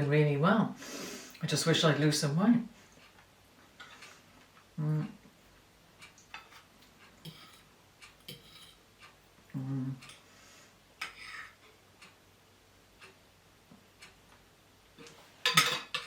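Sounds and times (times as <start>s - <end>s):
cutlery scraping a plate: 3.8s - 4.2s, 6.3s - 8.8s, 11.0s - 11.8s, 15.4s - 16.0s
low voice hum: 4.8s - 5.2s, 9.5s - 10.2s.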